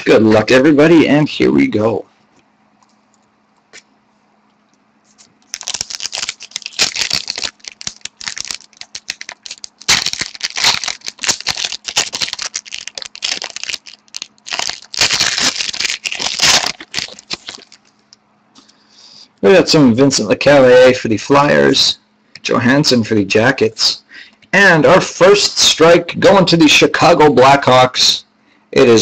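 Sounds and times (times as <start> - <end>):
wrapper tearing and crinkling: 5.4 - 18.0.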